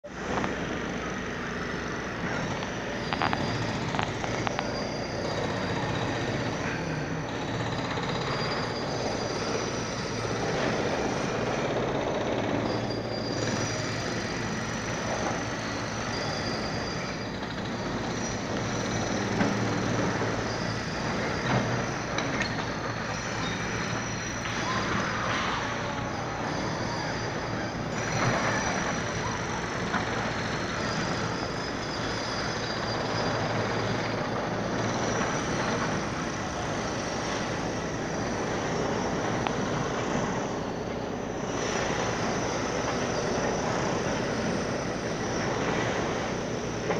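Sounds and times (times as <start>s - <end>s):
diesel engine drone: 0.0s - 46.9s.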